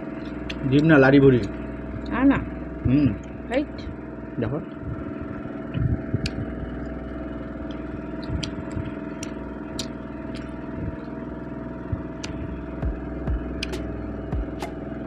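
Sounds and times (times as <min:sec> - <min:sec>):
low mechanical hum: 0:00.0 - 0:15.0
small sharp eating clicks: 0:00.1 - 0:02.2, 0:05.1 - 0:14.7.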